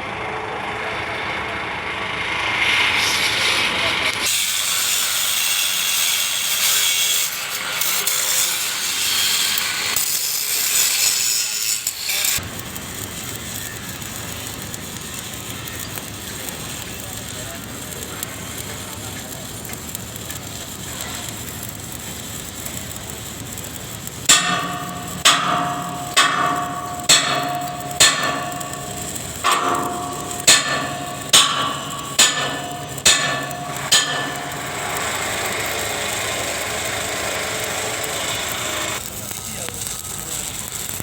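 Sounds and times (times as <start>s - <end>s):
steady hiss: 2.7s - 41.0s
hammer striking metal: 24.3s - 39.0s.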